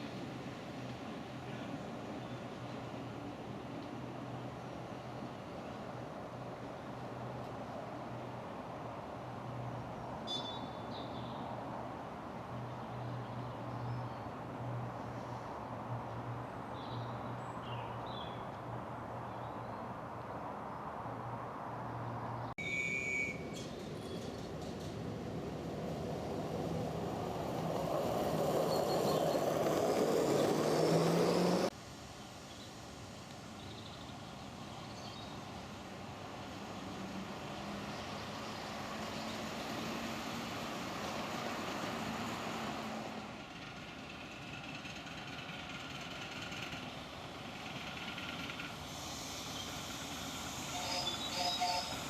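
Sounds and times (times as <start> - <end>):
miniature train running on track: 27.0 - 31.0, 43.4 - 52.0.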